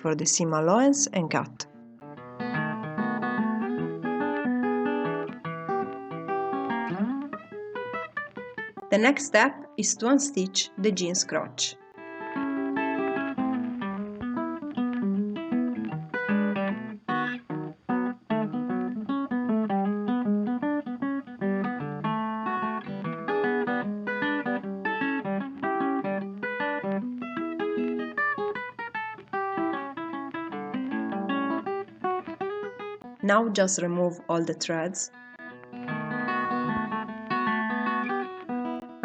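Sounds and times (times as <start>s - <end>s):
acoustic guitar blues music: 0.0s - 39.0s.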